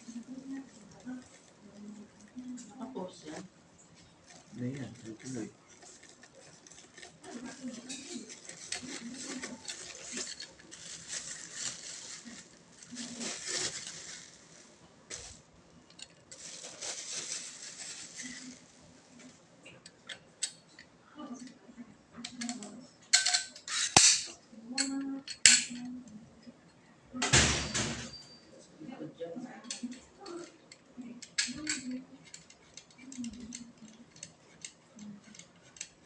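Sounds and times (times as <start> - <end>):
packaging rustling and scraping: 0.0 - 19.4.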